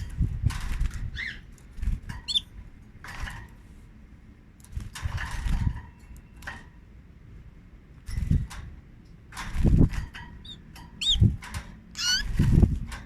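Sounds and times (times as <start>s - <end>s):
wings fluttering: 0.4s - 2.5s, 9.4s - 13.0s
canaries chirping: 1.1s - 2.6s, 10.1s - 12.6s.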